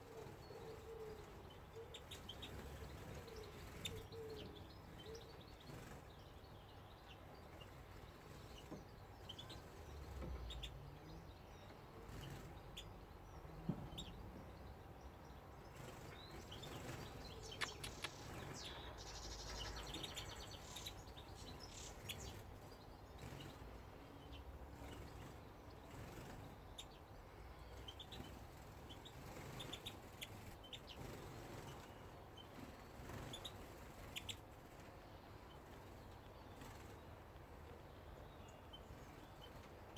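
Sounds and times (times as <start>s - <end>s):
small birds chirping: 0.0s - 39.9s
sharp clicks: 17.5s - 18.7s.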